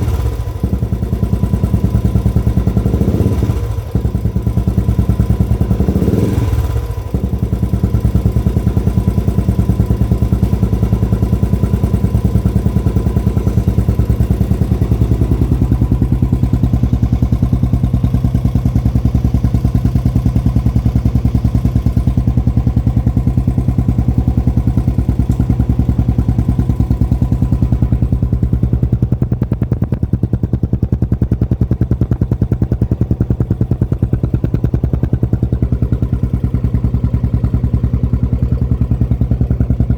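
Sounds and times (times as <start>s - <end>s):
motorcycle engine thumping: 0.0s - 39.9s.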